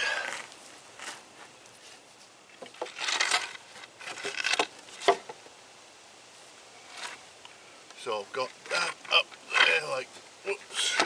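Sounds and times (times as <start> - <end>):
wooden boards knocking and scraping: 2.6 - 5.4.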